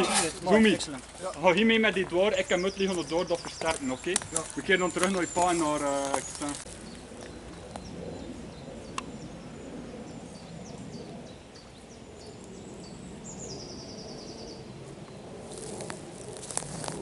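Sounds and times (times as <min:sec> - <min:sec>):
rustling in vegetation: 0:00.0 - 0:07.9, 0:14.9 - 0:17.0
low rumble of wind: 0:00.0 - 0:17.0.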